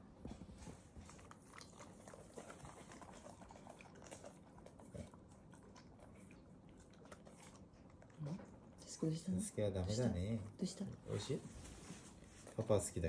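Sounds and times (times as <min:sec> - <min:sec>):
dog lapping water: 0:00.8 - 0:08.8.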